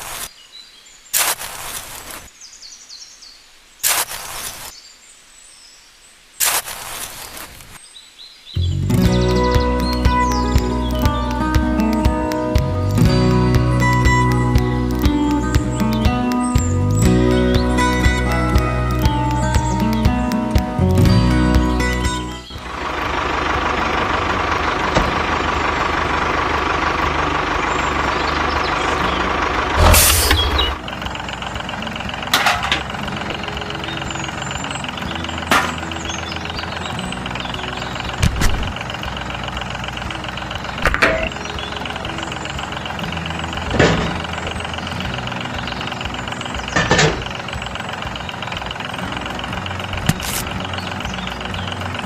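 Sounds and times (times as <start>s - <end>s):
tractor-like engine running: 8.6s - 52.0s
sharp knock or clank: 29.8s - 30.8s.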